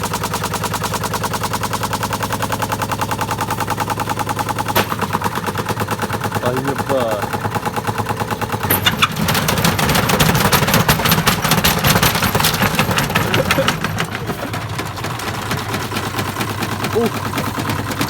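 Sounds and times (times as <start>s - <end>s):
off-balance washing machine banging: 4.6s - 18.0s.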